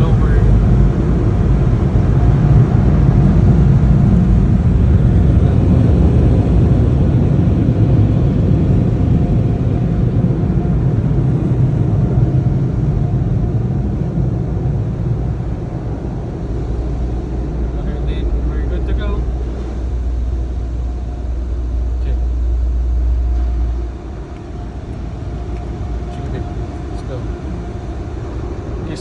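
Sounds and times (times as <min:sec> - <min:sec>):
car wash blowers blasting air: 0:00.0 - 0:29.0.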